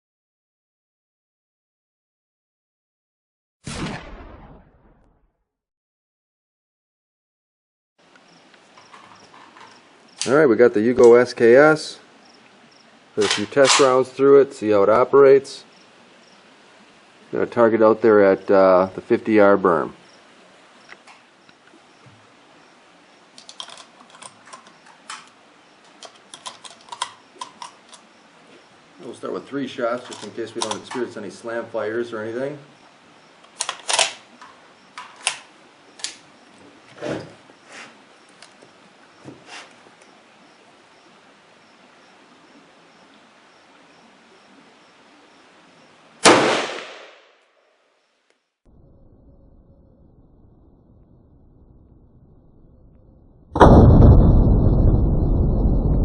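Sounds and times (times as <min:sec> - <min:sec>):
rifle shot: 0:03.6 - 0:05.1, 0:13.2 - 0:14.0, 0:46.2 - 0:47.4, 0:53.6 - 0:54.7
rifle handling clicks: 0:13.2 - 0:13.9, 0:23.4 - 0:28.1, 0:30.0 - 0:31.1, 0:33.4 - 0:34.2, 0:35.0 - 0:36.2.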